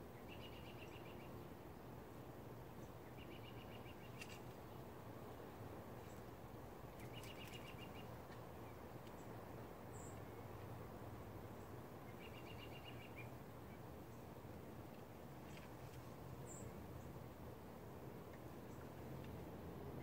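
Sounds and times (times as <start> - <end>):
low outdoor rumble: 13.2 - 20.0.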